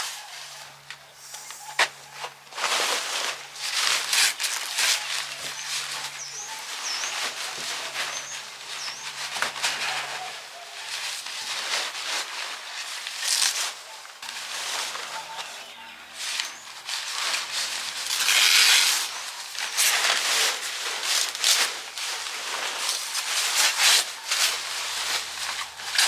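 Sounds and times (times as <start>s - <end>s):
rustling and scraping: 0.0s - 26.0s
bird chirping: 5.0s - 9.3s, 14.7s - 16.8s.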